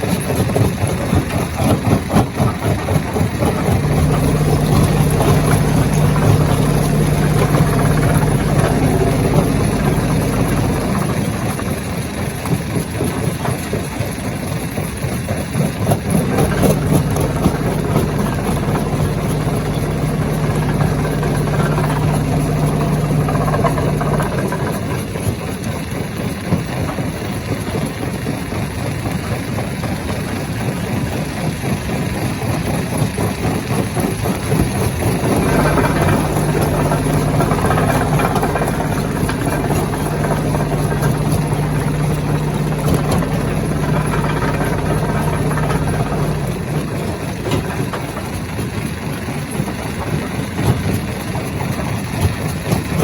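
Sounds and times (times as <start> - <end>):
stone crusher grinding rock: 3.0 - 13.7, 15.8 - 25.3, 34.3 - 48.2
low hum: 3.4 - 11.8, 16.1 - 25.0, 35.2 - 47.4.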